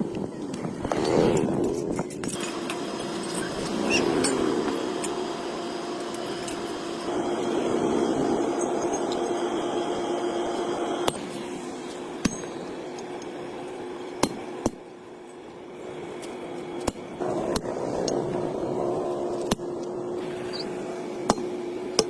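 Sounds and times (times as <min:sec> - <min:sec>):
steady hum: 0:00.0 - 0:22.0
sharp metallic knocks: 0:12.2 - 0:12.7.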